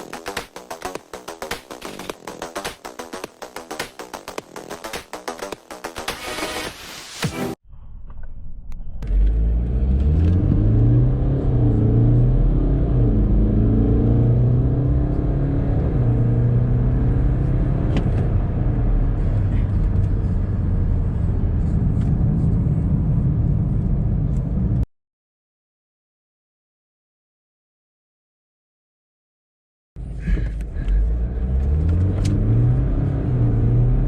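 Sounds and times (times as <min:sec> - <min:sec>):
car engine accelerating: 0:09.0 - 0:24.8, 0:30.0 - 0:34.0.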